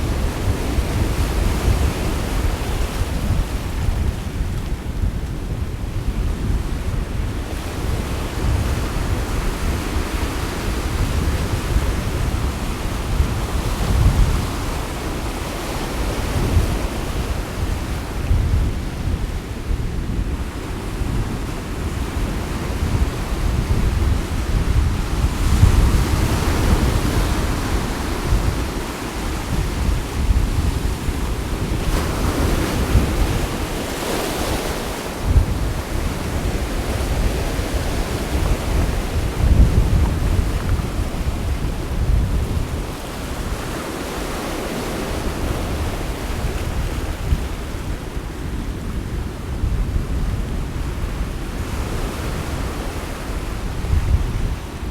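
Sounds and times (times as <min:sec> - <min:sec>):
sea waves washing on shore: 0:00.0 - 0:54.9
wind gusting on microphone: 0:00.0 - 0:54.9.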